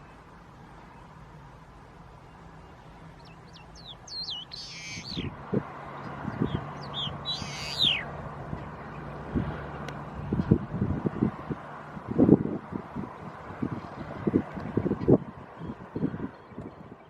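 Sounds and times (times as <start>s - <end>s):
bird whistled notes: 3.5s - 5.3s, 6.8s - 8.1s
harsh rasping bird call: 3.8s - 5.4s, 6.5s - 8.1s.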